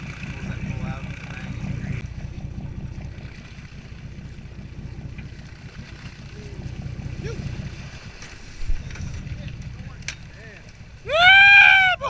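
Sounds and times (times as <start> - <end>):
boat motor rumble: 0.0 - 12.0.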